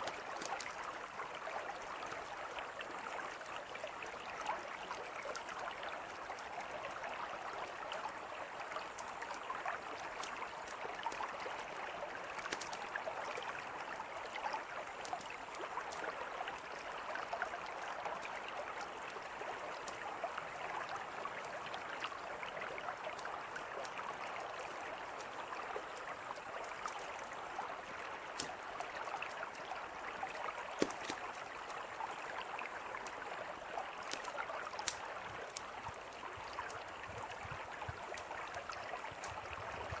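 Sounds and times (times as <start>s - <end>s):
campfire crackling and popping: 0.0s - 1.0s, 8.8s - 14.0s, 21.4s - 31.9s, 32.8s - 40.0s.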